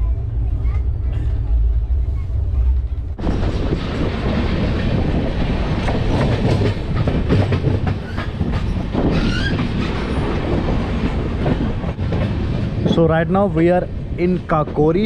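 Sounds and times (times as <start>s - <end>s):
train wheels clattering over rails: 3.1s - 13.1s.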